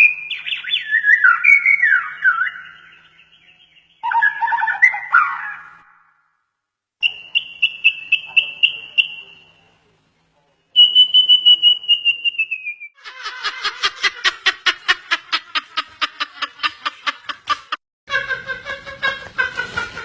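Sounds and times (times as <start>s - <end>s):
rapid repeated bird calls: 0.0s - 6.1s, 7.0s - 9.9s.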